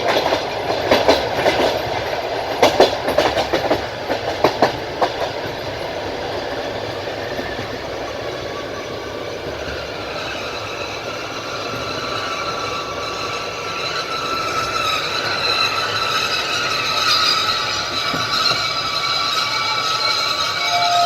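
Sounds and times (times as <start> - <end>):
train rumbling on rails: 0.0 - 21.0
train wheels clicking over rail joints: 0.0 - 21.0
high wheel squeal: 5.4 - 21.0.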